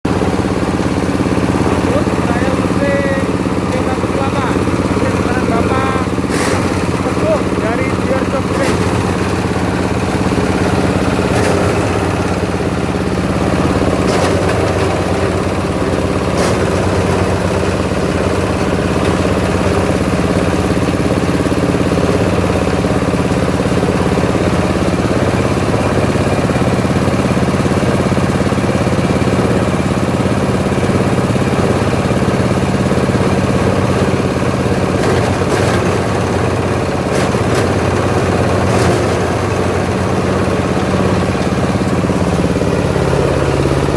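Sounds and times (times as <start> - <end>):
grinding machine running: 0.0 - 43.9.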